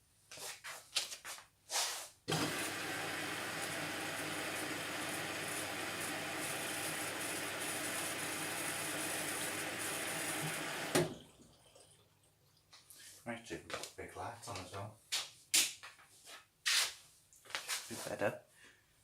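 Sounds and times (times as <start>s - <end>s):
washing machine filling with water: 2.3s - 12.2s.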